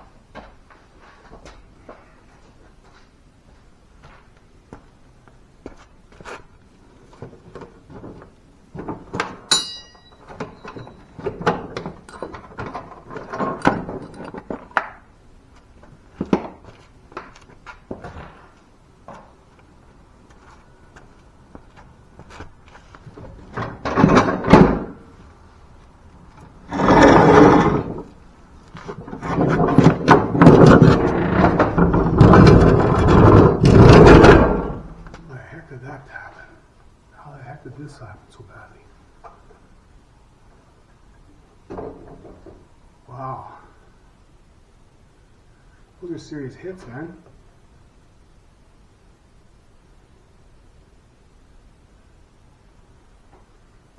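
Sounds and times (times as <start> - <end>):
metal parts knocking and clanking: 8.8 - 14.6, 23.5 - 25.0
ringing metallic clink: 9.5 - 11.0
metal rattling and banging: 23.2 - 25.1, 29.0 - 35.1.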